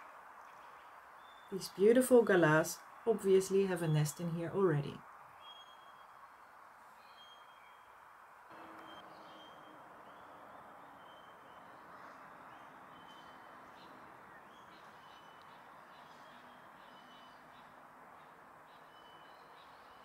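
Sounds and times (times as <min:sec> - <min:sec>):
faint whistled bird calls: 0:05.4 - 0:06.2, 0:07.0 - 0:07.9, 0:08.8 - 0:20.0.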